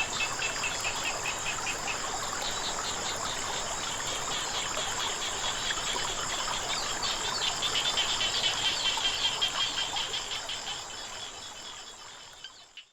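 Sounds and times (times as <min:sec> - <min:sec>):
insects droning: 0:00.0 - 0:12.8
frogs calling: 0:06.8 - 0:12.9.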